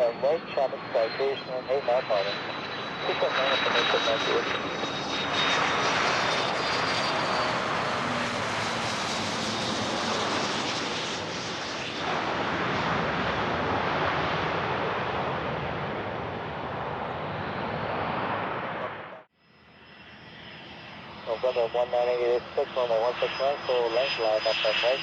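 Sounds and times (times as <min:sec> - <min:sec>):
jet engines rumbling: 0:00.0 - 0:25.0
faint high whine: 0:18.8 - 0:25.0.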